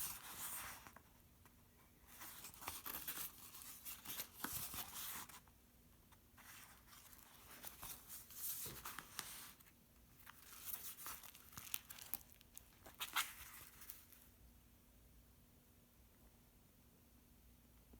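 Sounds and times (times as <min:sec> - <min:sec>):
faint steady hum: 0:00.0 - 0:17.9
paper pages rustling: 0:02.1 - 0:05.5, 0:06.4 - 0:14.3.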